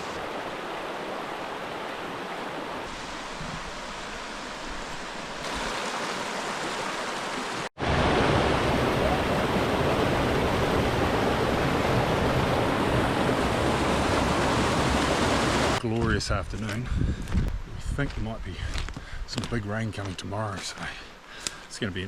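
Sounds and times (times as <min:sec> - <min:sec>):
river rushing: 0:00.0 - 0:15.8.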